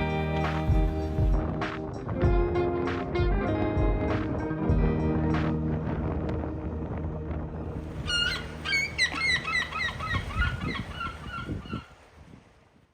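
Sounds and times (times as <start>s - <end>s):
music: 0.0s - 10.4s
birds calling: 7.9s - 12.1s.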